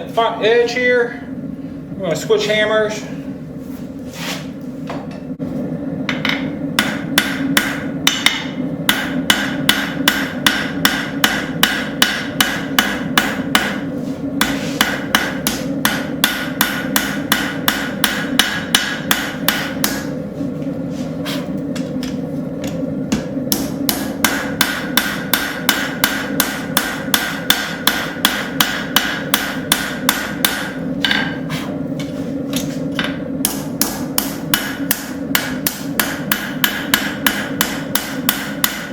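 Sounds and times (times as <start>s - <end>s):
steady low hum: 0.0s - 38.9s
hammer striking metal on anvil: 6.1s - 20.1s, 21.8s - 31.4s, 32.6s - 38.9s.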